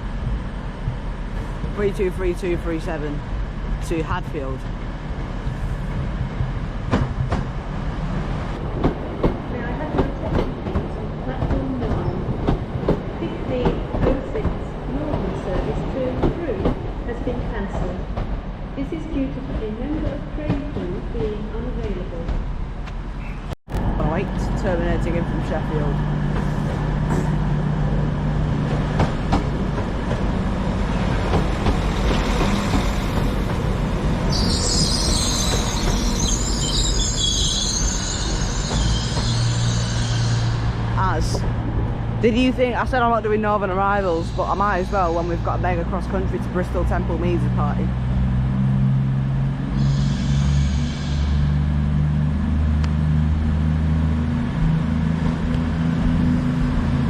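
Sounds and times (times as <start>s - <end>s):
train rumble: 0.0s - 57.0s
high wheel squeal: 34.3s - 41.0s, 49.7s - 51.7s.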